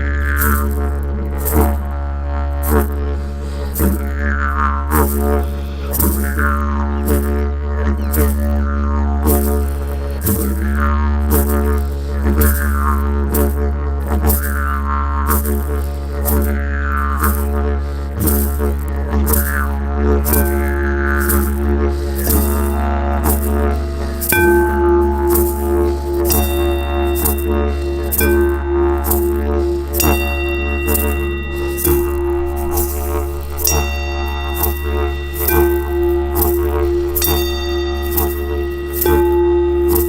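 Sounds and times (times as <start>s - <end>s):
didgeridoo drone: 0.0s - 40.0s
steady higher tone: 19.4s - 40.0s.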